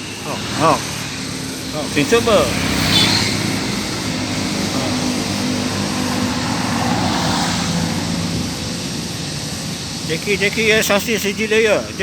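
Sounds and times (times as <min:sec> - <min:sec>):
motor drone: 0:00.0 - 0:12.0.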